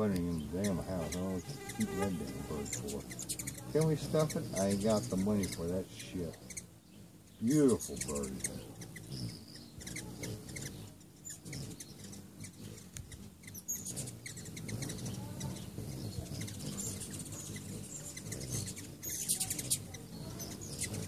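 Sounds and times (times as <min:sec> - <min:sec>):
hummingbirds chittering: 0:00.0 - 0:21.0.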